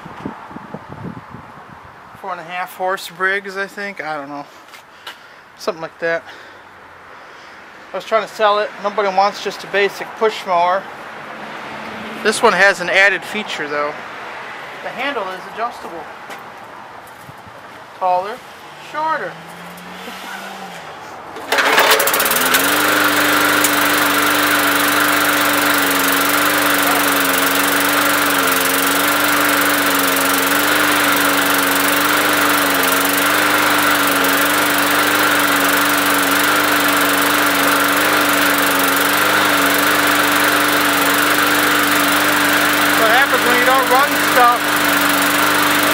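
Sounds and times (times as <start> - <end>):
lawn mower engine starting: 21.3 - 45.9.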